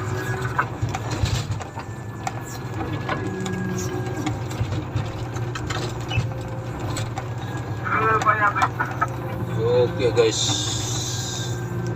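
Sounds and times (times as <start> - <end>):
motor grader diesel engine: 0.0 - 11.9
machinery rattling clicks: 0.7 - 9.2.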